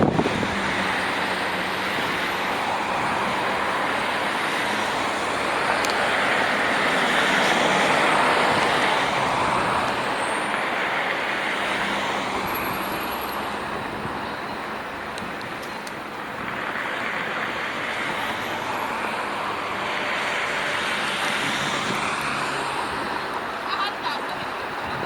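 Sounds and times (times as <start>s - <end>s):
vehicle passing by: 18.3s - 23.5s.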